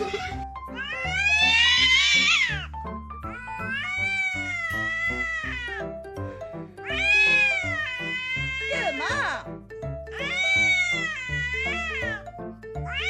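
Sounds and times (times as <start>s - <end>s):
background music: 0.0s - 13.0s
cat meowing: 0.7s - 2.7s, 3.3s - 5.9s, 6.8s - 9.2s, 10.1s - 12.2s.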